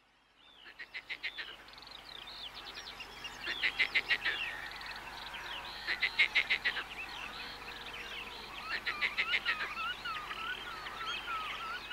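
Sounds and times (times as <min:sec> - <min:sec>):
birds chirping and whistling: 0:07.0 - 0:11.9.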